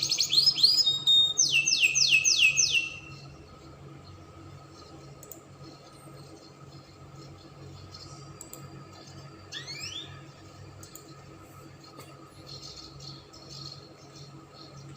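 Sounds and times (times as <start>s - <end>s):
canary rising chirp: 0.0s - 3.5s, 9.4s - 10.5s
steady low hum: 0.0s - 14.9s
faint clicks: 5.2s - 5.5s, 8.4s - 9.1s, 10.8s - 11.1s.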